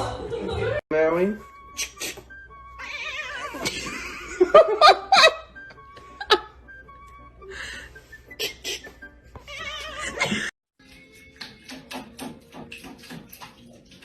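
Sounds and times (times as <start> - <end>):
background music: 0.0 - 14.0
person laughing: 3.6 - 6.6, 8.3 - 9.0, 10.0 - 10.5.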